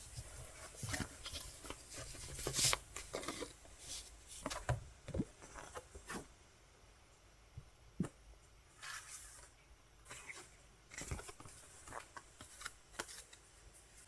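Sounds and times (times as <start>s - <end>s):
paper and plastic rustling: 0.0s - 6.3s, 10.1s - 14.0s.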